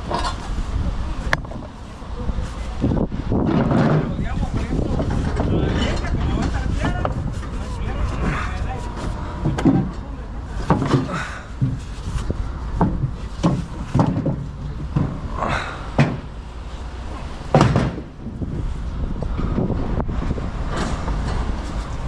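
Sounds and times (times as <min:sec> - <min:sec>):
wind rumble on microphone: 0:00.0 - 0:22.0
irregular knocks and bangs: 0:12.7 - 0:15.3, 0:15.9 - 0:16.4, 0:17.5 - 0:18.4.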